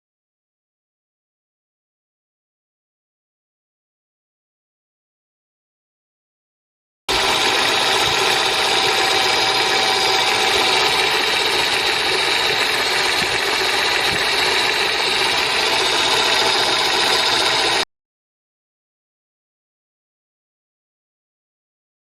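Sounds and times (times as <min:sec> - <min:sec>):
electric motor hum and whine: 0:07.1 - 0:17.8.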